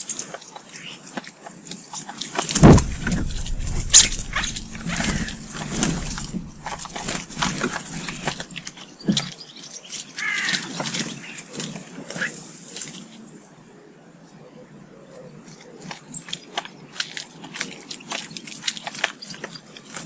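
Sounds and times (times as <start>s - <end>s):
low thump: 2.6s - 8.7s.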